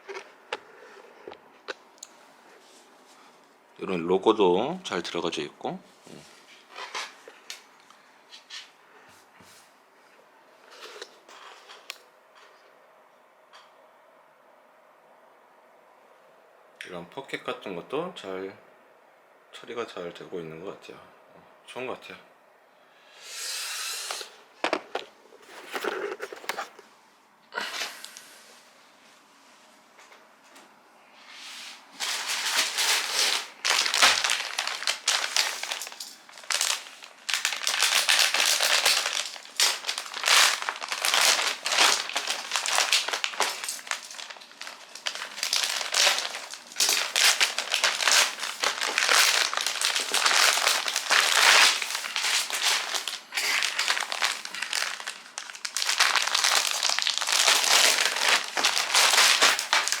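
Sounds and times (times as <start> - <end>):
plastic bag crinkling: 32.0 - 60.0.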